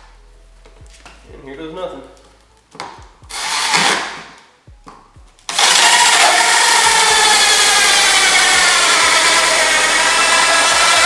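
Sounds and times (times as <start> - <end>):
drill with hole saw cutting: 3.3 - 4.4, 5.5 - 11.0.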